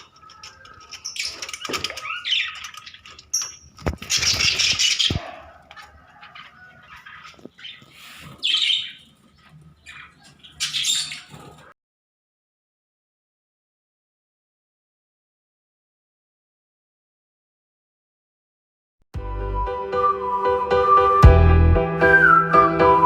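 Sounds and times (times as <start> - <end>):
wings flapping: 0.0 - 6.2
budgerigars chirping: 1.0 - 11.7.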